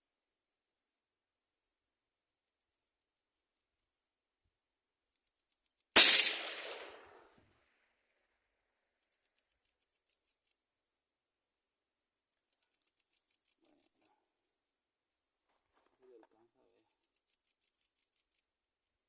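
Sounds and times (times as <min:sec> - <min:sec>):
rifle shot with echo: 0:06.0 - 0:07.3.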